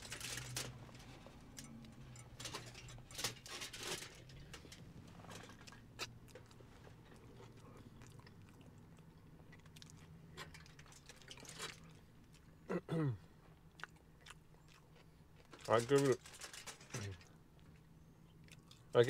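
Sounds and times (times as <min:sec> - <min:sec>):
low steady hum: 0:00.0 - 0:19.0
chewing and biting food: 0:05.7 - 0:12.6, 0:13.6 - 0:15.7, 0:17.6 - 0:18.9.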